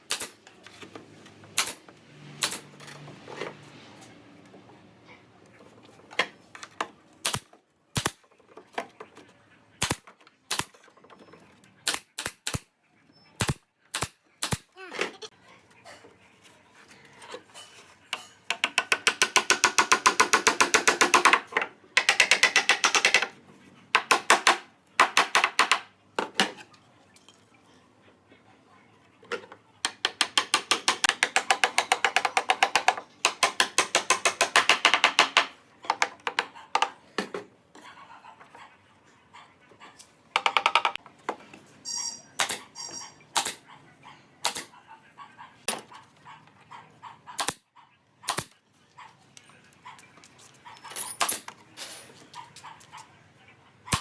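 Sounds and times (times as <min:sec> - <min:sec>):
rapid hammering strikes: 0:18.5 - 0:23.3, 0:29.9 - 0:35.5.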